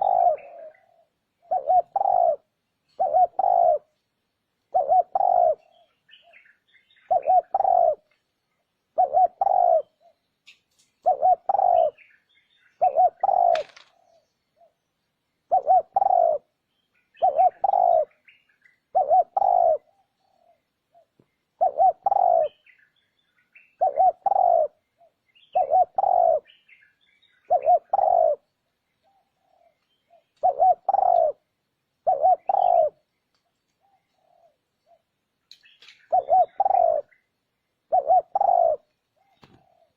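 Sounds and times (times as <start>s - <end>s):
dove cooing: 0.0s - 4.0s, 4.7s - 8.1s, 8.9s - 14.8s, 15.5s - 22.9s, 23.7s - 33.0s, 33.8s - 39.9s.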